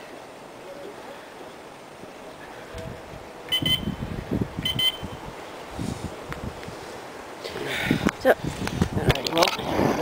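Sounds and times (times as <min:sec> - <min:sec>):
bite alarm beeps: 0:03.5 - 0:04.0, 0:04.6 - 0:05.2.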